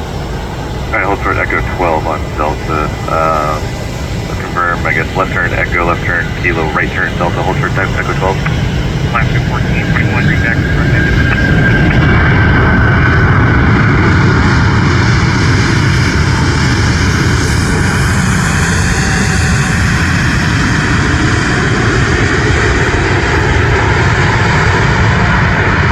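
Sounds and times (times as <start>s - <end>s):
faint high whine: 0.0s - 15.7s
jet engines running: 0.0s - 25.9s.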